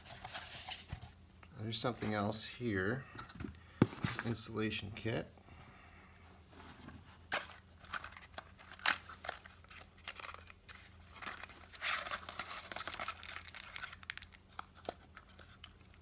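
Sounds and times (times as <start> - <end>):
plastic packaging crinkling: 7.8 - 16.0.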